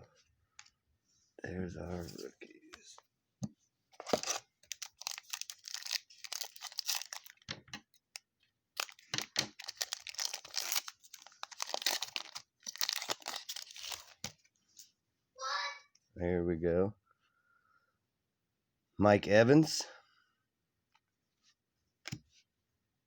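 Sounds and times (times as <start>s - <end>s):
wrapper tearing and crinkling: 4.0s - 7.5s, 8.8s - 14.3s.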